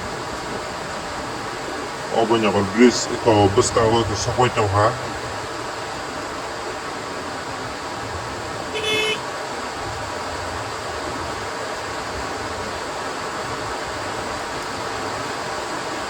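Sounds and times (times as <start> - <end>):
steady rushing noise: 0.0 - 16.0
short vehicle horn toot: 8.7 - 9.2.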